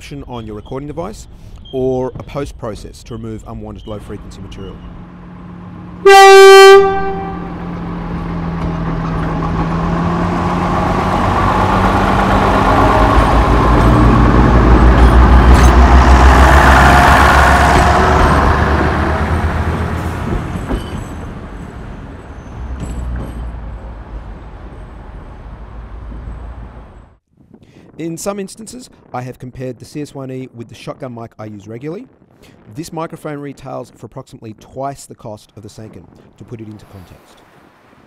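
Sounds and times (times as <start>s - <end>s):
horn blast: 6.0s - 8.0s
heavy vehicle passing by: 7.0s - 27.2s.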